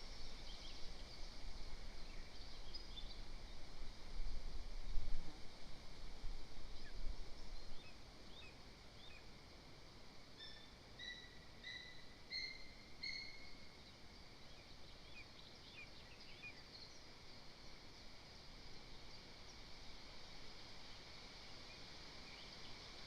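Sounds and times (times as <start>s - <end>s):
bird whistling notes: 10.4s - 13.5s.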